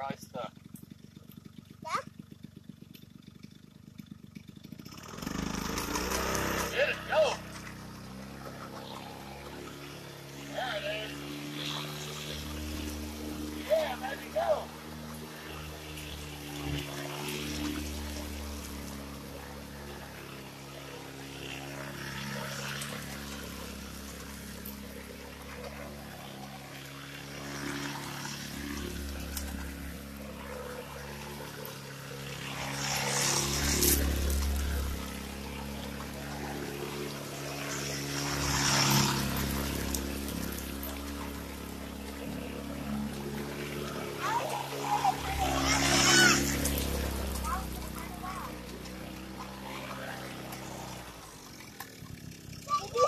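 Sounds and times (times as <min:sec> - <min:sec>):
wheels splashing through mud: 0:03.1 - 0:53.0
dirt bike engine revving: 0:04.8 - 0:53.0.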